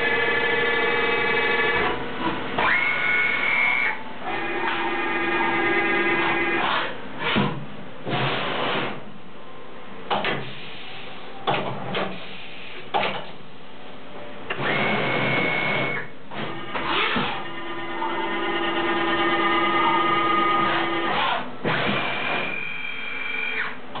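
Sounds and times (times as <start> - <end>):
low machine hum: 0.0 - 24.0
machine whining tones: 2.6 - 7.4, 14.5 - 24.0
machine cutting noise: 14.5 - 23.8.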